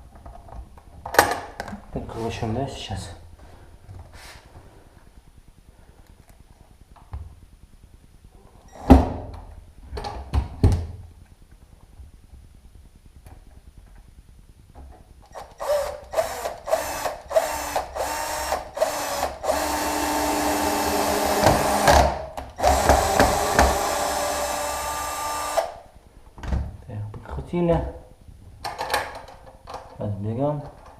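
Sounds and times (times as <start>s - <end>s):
power drill driving screws: 15.3s - 25.8s.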